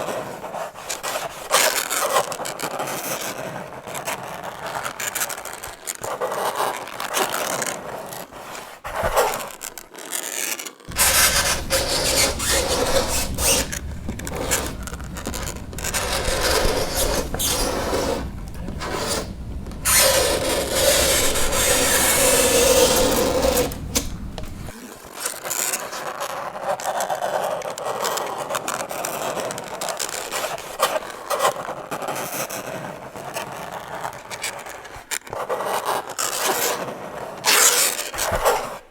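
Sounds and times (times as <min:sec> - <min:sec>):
held screech: 0:10.9 - 0:24.7
fingernails scraping chalkboard: 0:10.9 - 0:24.8.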